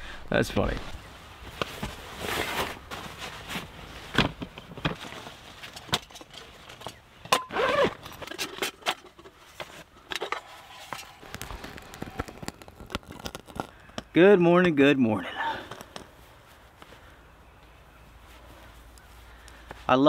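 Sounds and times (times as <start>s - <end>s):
camp gear clicks and knocks: 1.4s - 14.1s, 15.5s - 17.0s.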